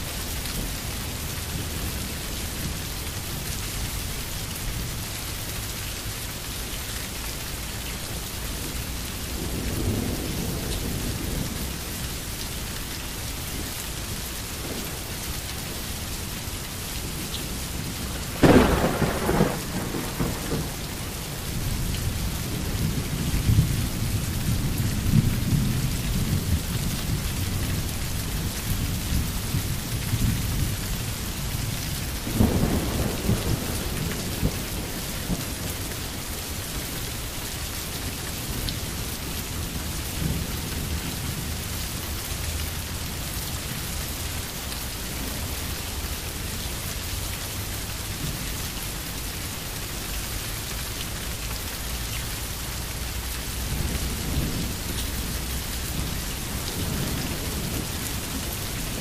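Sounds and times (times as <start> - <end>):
steady rain falling: 0.0 - 59.0
thunder rumbling: 17.1 - 36.9, 53.6 - 59.0.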